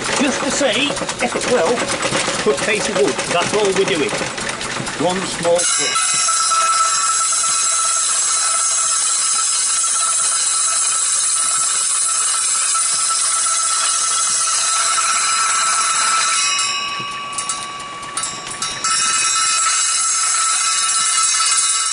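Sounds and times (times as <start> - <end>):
circular saw whining: 5.6 - 21.9.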